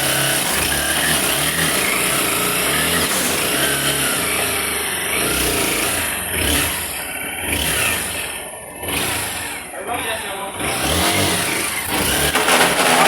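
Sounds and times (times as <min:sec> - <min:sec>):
motorcycle engine running: 0:00.0 - 0:13.0
strange engine noise: 0:00.0 - 0:13.0.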